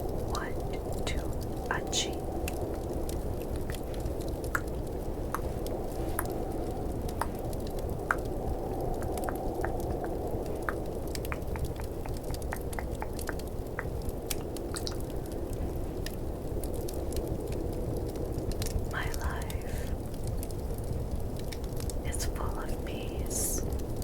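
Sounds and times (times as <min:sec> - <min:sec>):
fireplace ambience: 0:00.0 - 0:24.0
snowstorm rush: 0:00.0 - 0:24.0
wet tongue clicks: 0:09.0 - 0:15.2.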